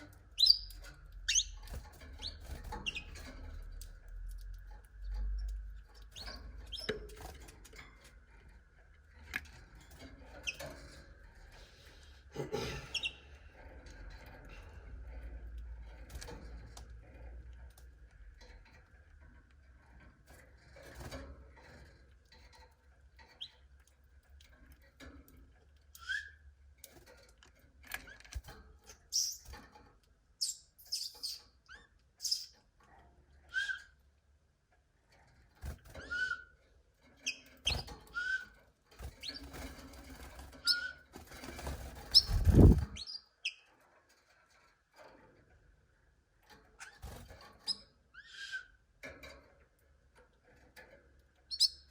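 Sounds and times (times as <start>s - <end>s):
canaries chirping: 0.0s - 8.1s, 9.5s - 11.6s, 12.2s - 13.8s, 23.2s - 24.6s, 25.8s - 26.5s, 28.2s - 29.8s, 30.4s - 32.7s, 33.3s - 34.0s, 35.6s - 43.7s, 46.8s - 48.9s, 51.3s - 51.9s.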